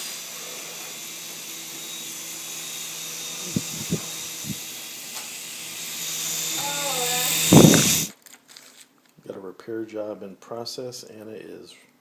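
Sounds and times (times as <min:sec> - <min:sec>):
toy helicopter rotors whirring: 0:00.0 - 0:08.2.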